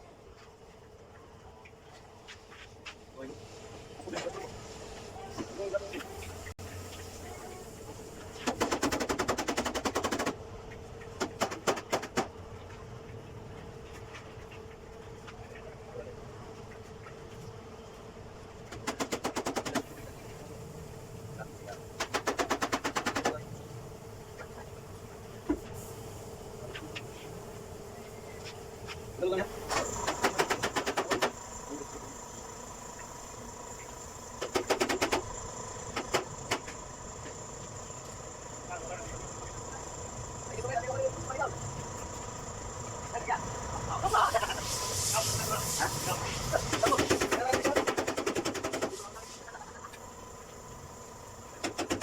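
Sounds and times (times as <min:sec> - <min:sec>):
steady hum: 0:00.0 - 0:52.0
rapid rattle of tool clicks: 0:18.7 - 0:19.9, 0:22.0 - 0:23.4, 0:29.7 - 0:31.4, 0:34.4 - 0:35.3, 0:46.6 - 0:49.1.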